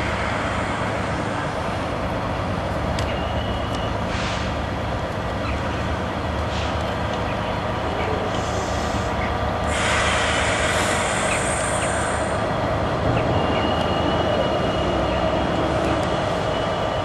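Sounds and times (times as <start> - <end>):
high hiss of train: 0.0 - 2.1, 4.0 - 4.7, 8.2 - 12.8
train engine and wheels rumbling: 0.0 - 17.0.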